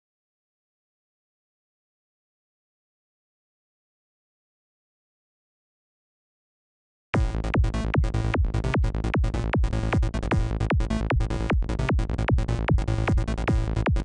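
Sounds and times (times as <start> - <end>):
steady low synth bass: 7.2 - 14.0.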